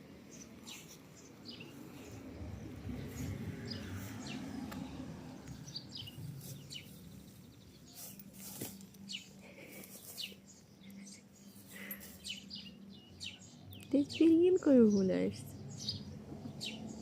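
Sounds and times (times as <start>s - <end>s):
small birds chirping: 0.1s - 17.0s
low steady rumble: 1.8s - 7.8s.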